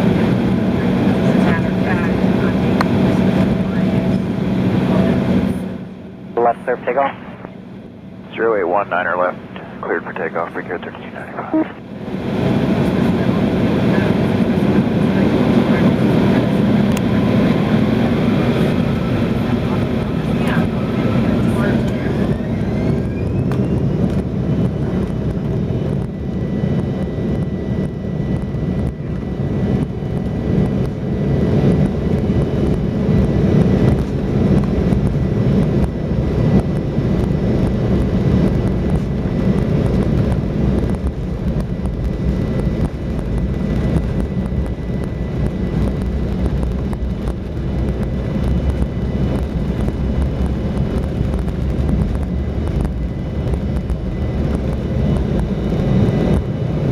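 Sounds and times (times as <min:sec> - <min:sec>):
jet engine drone in cabin: 0:00.0 - 0:56.9
faint high whine: 0:06.3 - 0:11.8.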